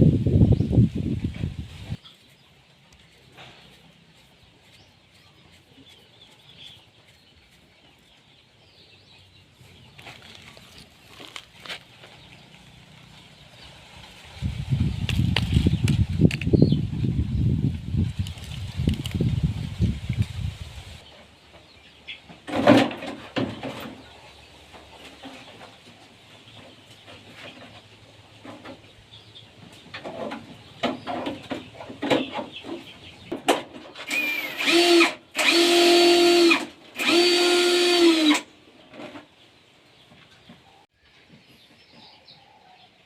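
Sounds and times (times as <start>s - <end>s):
small power tool motor: 34.1s - 38.5s.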